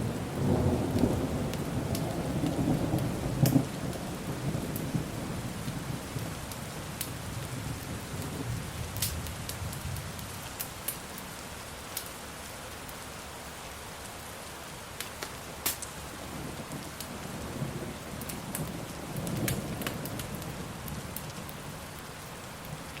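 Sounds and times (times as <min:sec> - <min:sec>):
steady rain: 0:00.0 - 0:23.0
fire crackling pops: 0:00.9 - 0:03.6, 0:09.0 - 0:09.6, 0:11.9 - 0:12.1, 0:15.0 - 0:16.0, 0:18.2 - 0:20.5.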